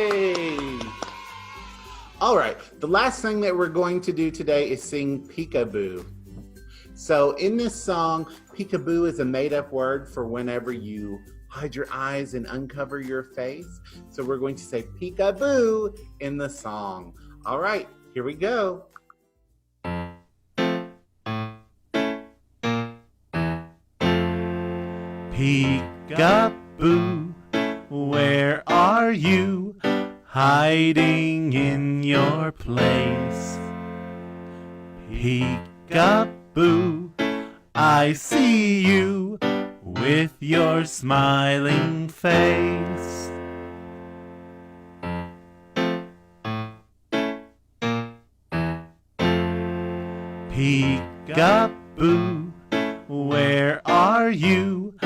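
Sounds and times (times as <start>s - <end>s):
keyboard playing chords: 19.8s - 55.0s.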